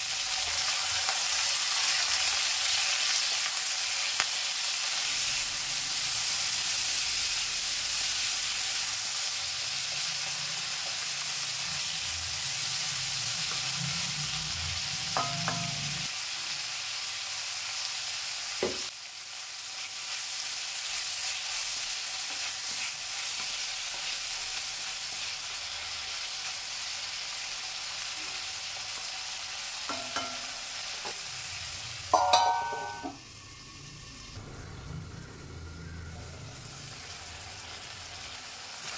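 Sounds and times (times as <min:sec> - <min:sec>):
vegetables sizzling in oil: 0:00.0 - 0:35.0, 0:36.1 - 0:38.9
steel lid clinking on pan: 0:15.2 - 0:15.9, 0:29.9 - 0:30.6, 0:32.1 - 0:33.2.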